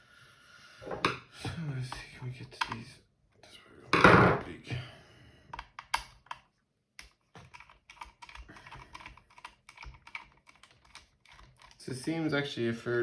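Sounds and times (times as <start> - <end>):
plastic clicks and taps: 5.5 - 11.8.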